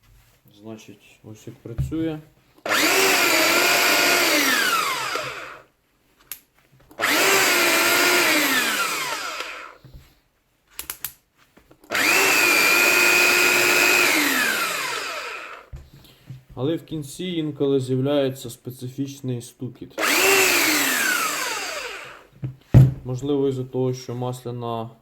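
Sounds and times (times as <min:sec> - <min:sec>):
rotary hammer motor whine: 0:02.7 - 0:05.6, 0:07.0 - 0:09.8, 0:11.9 - 0:15.7, 0:20.0 - 0:22.2.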